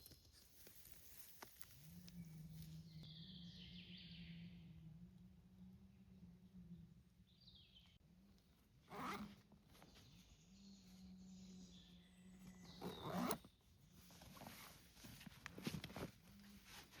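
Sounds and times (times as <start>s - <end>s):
faint low hum: 1.5s - 14.4s
rasping zipper-like scrapes: 8.9s - 9.4s, 12.8s - 13.5s.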